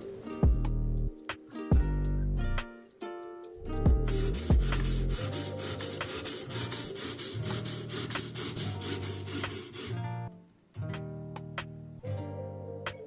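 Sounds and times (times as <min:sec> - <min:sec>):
guitar music: 0:00.0 - 0:13.0
knife scraping on abrasive: 0:04.1 - 0:10.1.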